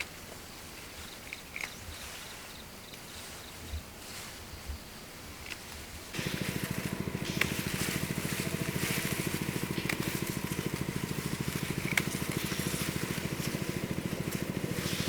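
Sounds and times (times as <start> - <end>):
small engine running: 6.1 - 15.0.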